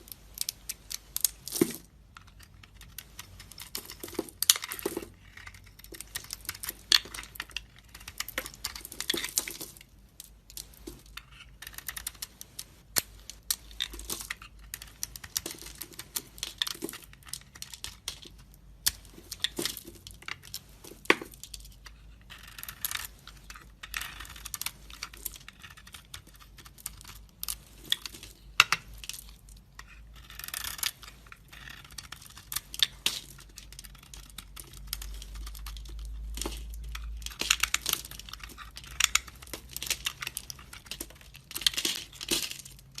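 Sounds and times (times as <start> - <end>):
knife carving dry soap: 0.1 - 43.0.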